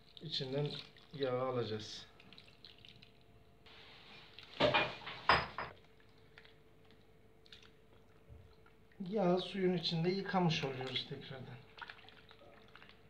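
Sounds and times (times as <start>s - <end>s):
faint hiss of water: 0.0s - 5.4s.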